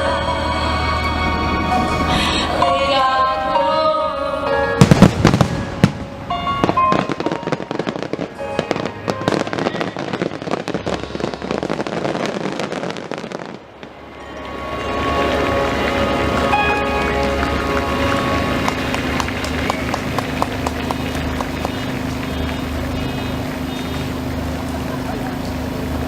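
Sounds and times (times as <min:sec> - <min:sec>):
music: 0:00.0 - 0:11.9, 0:13.8 - 0:22.6
fireworks booming: 0:04.8 - 0:14.2, 0:16.6 - 0:25.0
fireworks crackling: 0:04.8 - 0:26.0.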